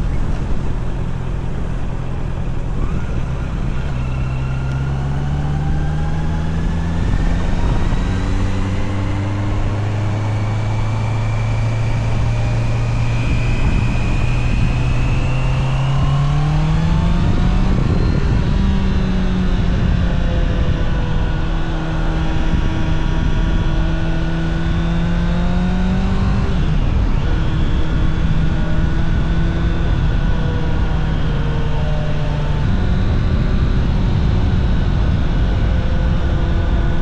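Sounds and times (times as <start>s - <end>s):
motorcycle engine pulling: 0.0s - 19.5s.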